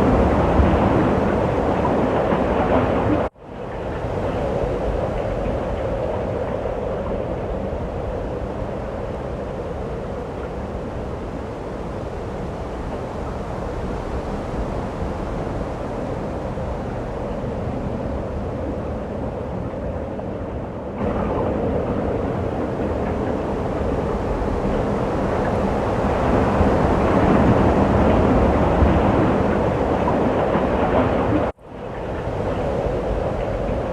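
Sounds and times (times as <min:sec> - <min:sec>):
rushing snowstorm wind: 0:00.0 - 0:33.9.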